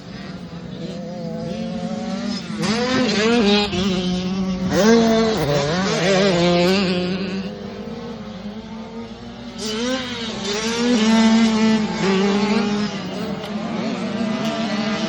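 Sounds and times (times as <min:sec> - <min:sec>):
motocross engine revving: 0:00.0 - 0:15.0.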